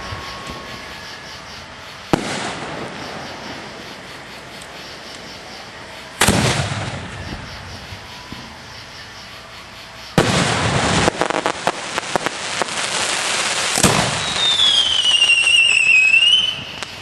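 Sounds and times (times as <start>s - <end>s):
firework bangs: 0.0s - 8.7s, 10.1s - 17.0s
falling firework whistle: 0.0s - 9.4s, 10.0s - 17.0s
firework crackling: 0.0s - 17.0s.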